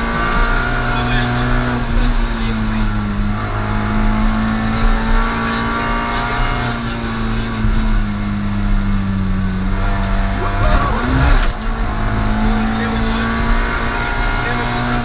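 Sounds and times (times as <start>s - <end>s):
rally car engine at high revs: 0.0s - 15.0s
road noise: 0.0s - 15.0s.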